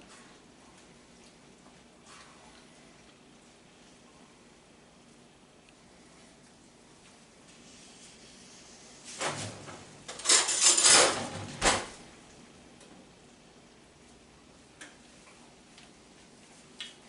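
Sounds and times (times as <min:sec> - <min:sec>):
kitchen handling clatter: 0:09.2 - 0:12.0.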